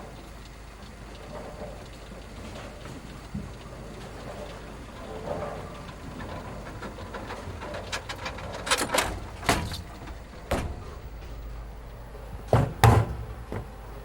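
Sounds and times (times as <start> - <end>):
steady low hum: 0.0 - 14.0
sharp knocks and clatters: 6.2 - 11.4, 12.4 - 13.8.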